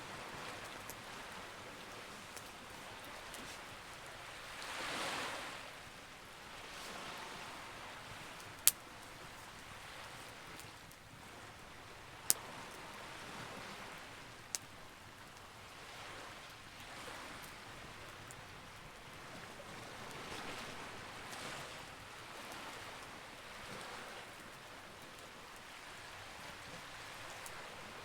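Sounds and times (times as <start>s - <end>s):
campfire crackling: 0.1s - 5.6s, 6.2s - 23.1s.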